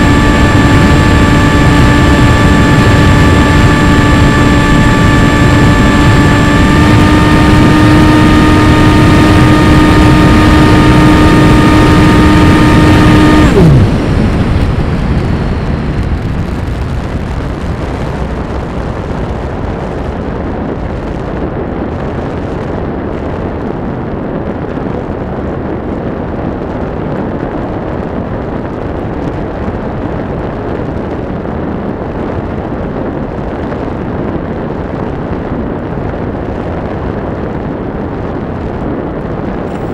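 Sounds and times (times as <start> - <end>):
model plane motor and propeller: 0.0 - 14.9, 39.7 - 39.9
wind rushing: 0.0 - 39.9.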